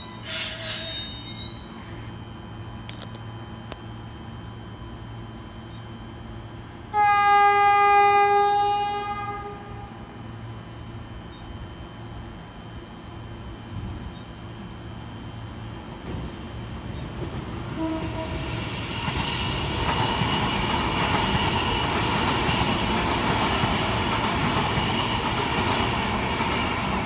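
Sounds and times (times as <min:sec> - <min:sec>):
train passing: 0:12.0 - 0:27.0.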